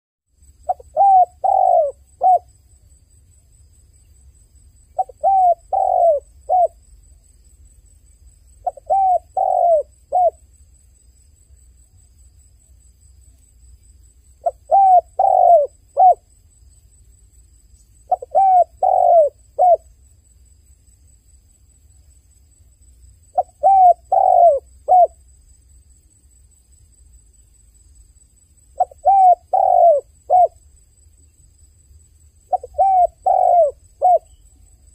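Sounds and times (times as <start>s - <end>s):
dove cooing: 0.7s - 2.5s, 5.0s - 6.8s, 8.6s - 10.4s, 14.4s - 16.3s, 18.1s - 19.8s, 23.4s - 25.2s, 28.8s - 30.6s, 32.5s - 34.4s.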